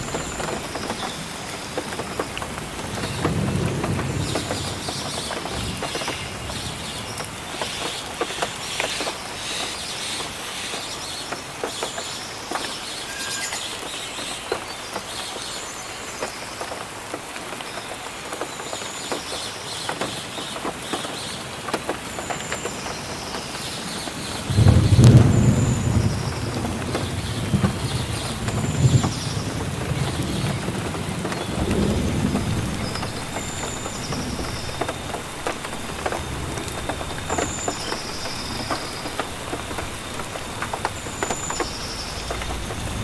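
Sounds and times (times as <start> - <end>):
thunder rumbling: 0.0 - 7.6, 23.8 - 43.0
steady rainfall: 0.0 - 43.0
drops ticking: 26.6 - 43.0.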